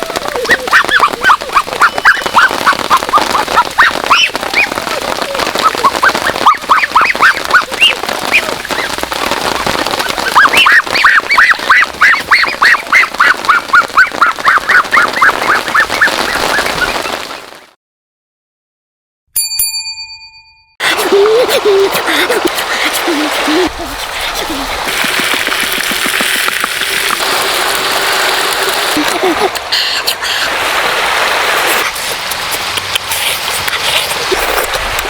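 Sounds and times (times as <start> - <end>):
geese honking: 0.0 - 17.4.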